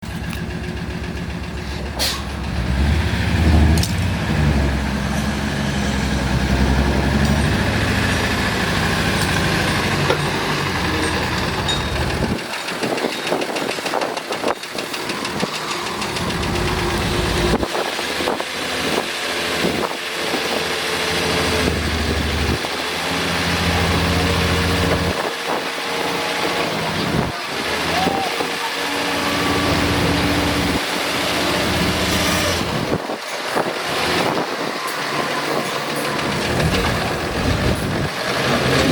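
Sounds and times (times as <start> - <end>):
work vehicle engine rumbling: 0.0 - 38.9.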